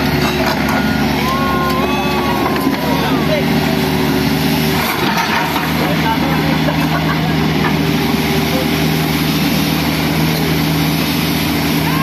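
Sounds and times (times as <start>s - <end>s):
engine running steadily: 0.0s - 12.0s
faint voices: 1.0s - 4.8s.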